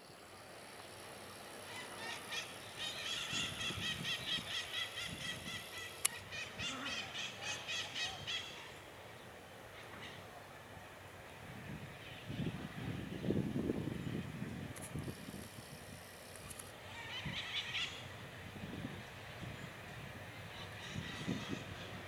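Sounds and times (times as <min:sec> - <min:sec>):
bird harsh repeated calls: 0:01.6 - 0:08.8.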